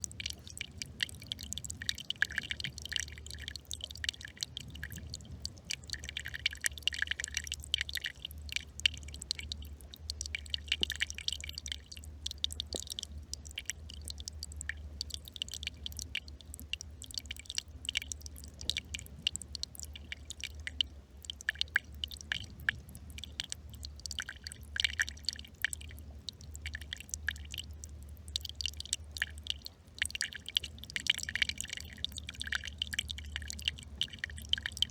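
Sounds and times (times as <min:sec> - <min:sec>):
brook trickling and bubbling: 0:00.0 - 0:34.9
low steady rumble: 0:00.0 - 0:34.9.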